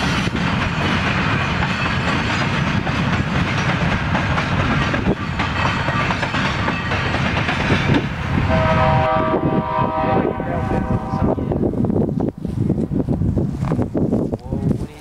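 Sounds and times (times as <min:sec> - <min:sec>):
train wheels rumbling on rails: 0:00.0 - 0:15.0
locomotive air horn chord: 0:08.5 - 0:11.4.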